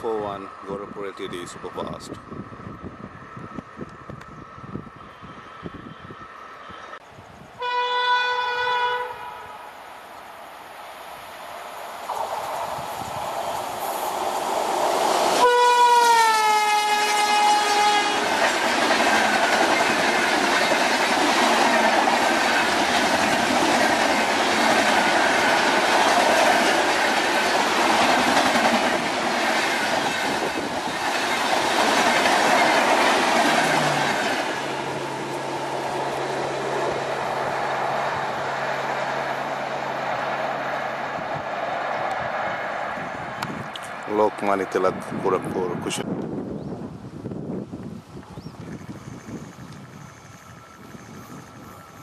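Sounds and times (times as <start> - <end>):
locomotive horn: 7.6 - 9.6, 15.4 - 18.4.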